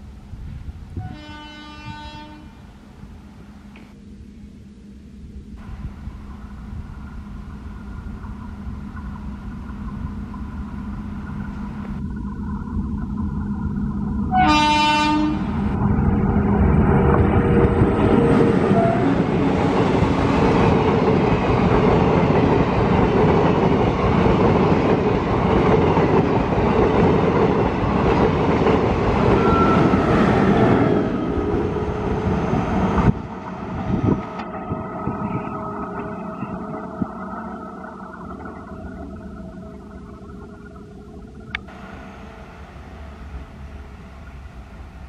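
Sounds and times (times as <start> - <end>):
train passing with wheel rumble: 0.0 - 39.7, 41.6 - 45.0
train horn blast: 1.0 - 2.7, 14.3 - 15.8, 18.6 - 19.3.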